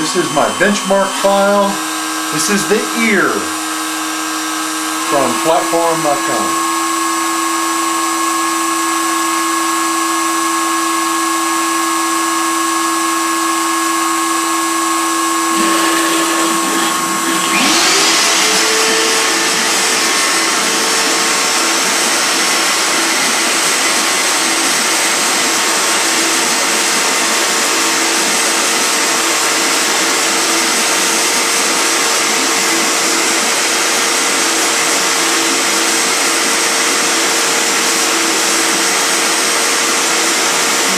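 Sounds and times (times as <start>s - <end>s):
machine steady whine: 0.0s - 40.9s
motor spinning up: 0.0s - 40.9s.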